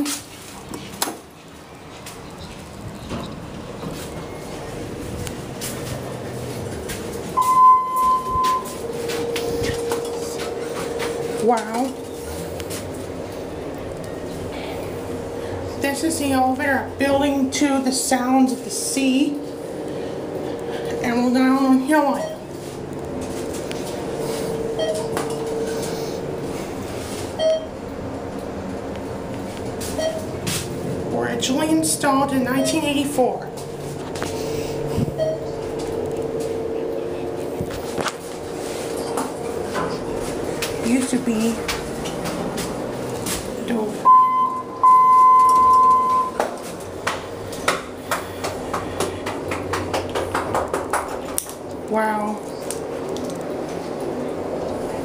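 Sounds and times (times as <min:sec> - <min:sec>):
elevator hum: 0:01.4 - 0:55.0
short electronic beeps: 0:07.4 - 0:08.8, 0:27.4 - 0:27.7, 0:44.0 - 0:46.4
elevator beeper tone: 0:07.4 - 0:12.4, 0:20.6 - 0:22.6, 0:24.1 - 0:26.0, 0:27.4 - 0:27.8, 0:30.0 - 0:30.4, 0:31.5 - 0:33.8, 0:35.2 - 0:37.2, 0:44.0 - 0:46.4.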